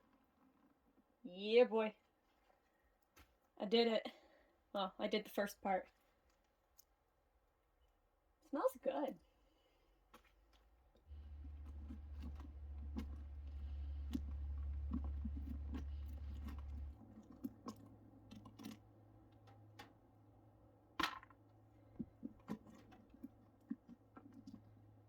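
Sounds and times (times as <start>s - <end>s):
knife and hands in pumpkin: 10.1s - 19.8s, 21.9s - 25.0s
low hum: 11.1s - 19.8s.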